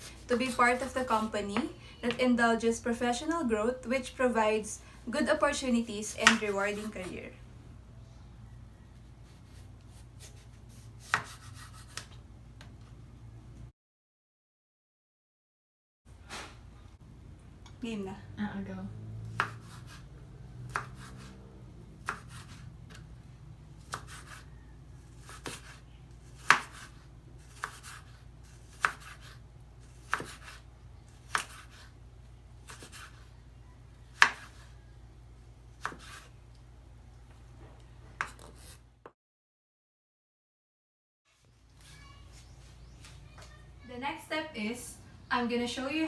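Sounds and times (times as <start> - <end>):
knife chopping on cutting board: 6.1 - 7.1, 9.4 - 12.2, 19.3 - 20.0, 20.7 - 21.4, 22.0 - 23.1, 23.8 - 30.6, 31.2 - 31.9, 32.7 - 33.2, 34.2 - 34.7, 35.7 - 36.3, 38.2 - 38.8
low steady hum: 16.6 - 23.9.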